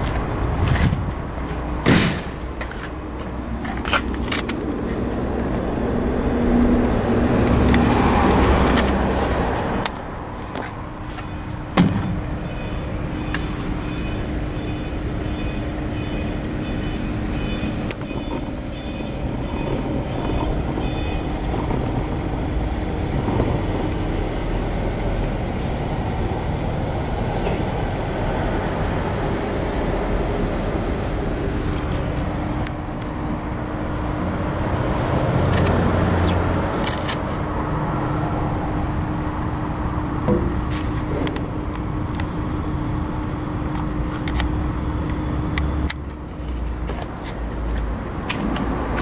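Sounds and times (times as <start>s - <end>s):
generator engine running: 0.0s - 49.0s.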